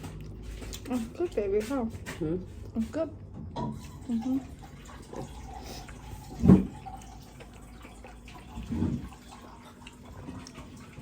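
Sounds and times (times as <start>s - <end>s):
person chewing food: 0.0s - 1.2s, 4.9s - 11.0s.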